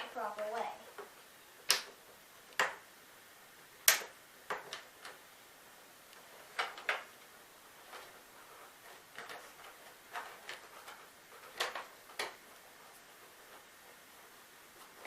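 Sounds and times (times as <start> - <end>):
sharp plastic clicks and taps: 0.4 - 2.8, 3.8 - 5.2.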